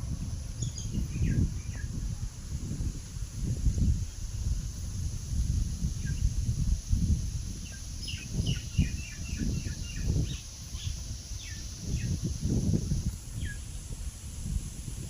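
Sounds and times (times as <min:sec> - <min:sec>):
high hiss: 0:00.0 - 0:15.0
small birds chirping: 0:00.6 - 0:02.0, 0:06.0 - 0:06.4, 0:07.5 - 0:13.9.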